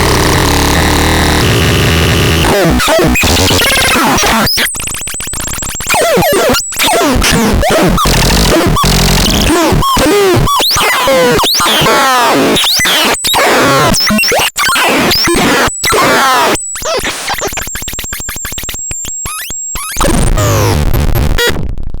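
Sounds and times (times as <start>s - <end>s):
dense low buzz: 0.0s - 3.6s
stuttering clicks: 0.0s - 13.2s, 16.8s - 21.6s
glitchy synthesizer noise: 0.0s - 21.7s.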